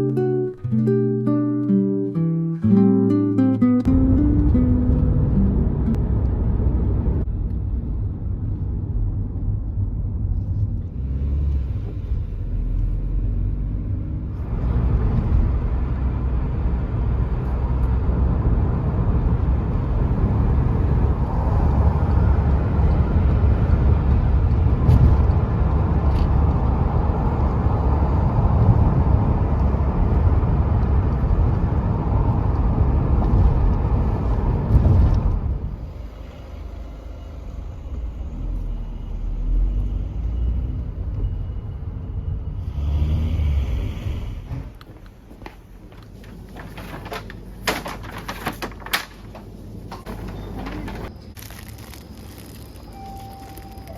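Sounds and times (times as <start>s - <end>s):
moving car rumble: 3.8s - 53.9s.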